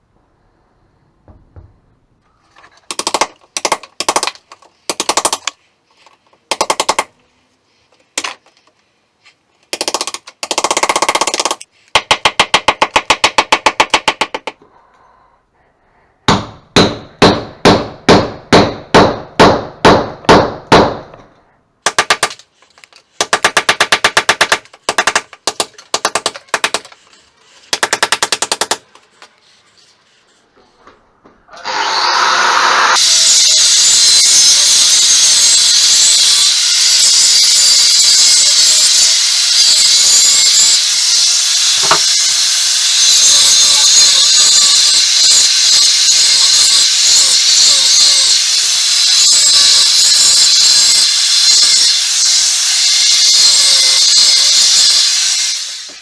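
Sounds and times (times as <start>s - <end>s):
hammer drill chipping brick: 31.6s - 56.0s.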